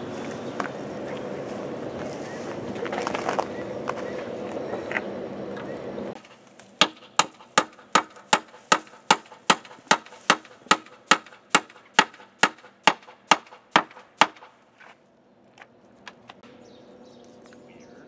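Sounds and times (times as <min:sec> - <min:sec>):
hammer blows: 0:06.2 - 0:14.6.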